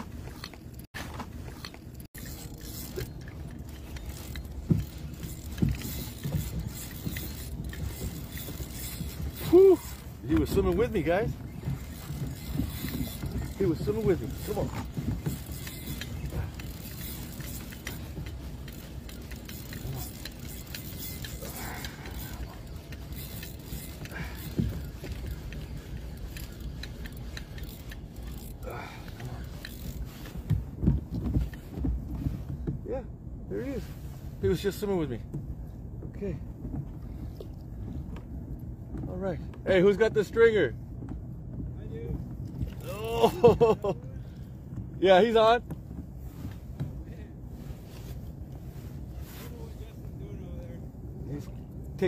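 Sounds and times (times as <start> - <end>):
water rumble: 0.0 - 52.0
fishing reel clicking: 15.3 - 28.6.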